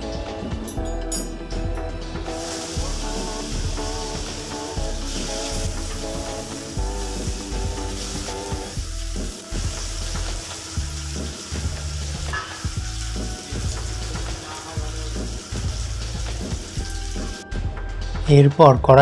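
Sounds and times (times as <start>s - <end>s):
background music: 0.0s - 19.0s
food sizzling in hot oil: 2.2s - 17.4s.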